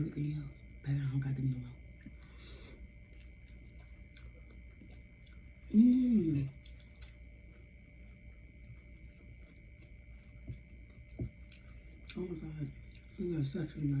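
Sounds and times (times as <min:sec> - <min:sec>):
close chewing: 0:03.1 - 0:05.7, 0:06.3 - 0:13.3
person humming mmm: 0:05.7 - 0:06.6.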